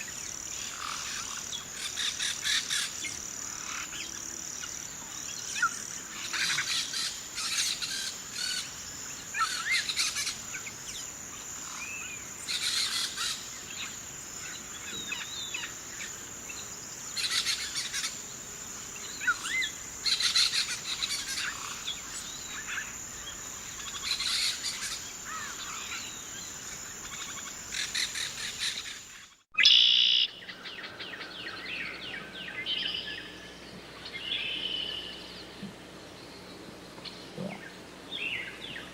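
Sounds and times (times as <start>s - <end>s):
high-pitched insect trill: 0.0s - 30.5s.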